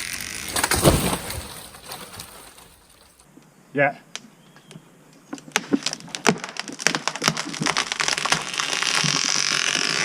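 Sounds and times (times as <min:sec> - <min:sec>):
tree trunk cracking and splintering: 0:00.0 - 0:03.2, 0:05.4 - 0:10.0.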